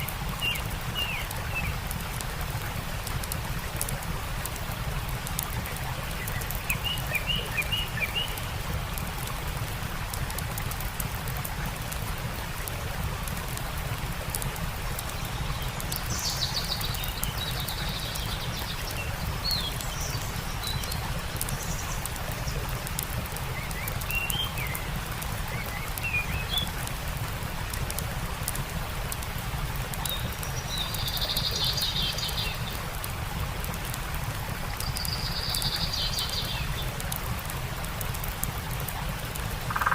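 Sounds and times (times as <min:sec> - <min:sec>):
campfire crackling: 0:00.0 - 0:39.9
stream rushing: 0:00.0 - 0:39.9
small birds chirping: 0:05.3 - 0:09.1, 0:14.8 - 0:26.8, 0:29.9 - 0:32.9, 0:34.7 - 0:37.1, 0:39.6 - 0:39.9.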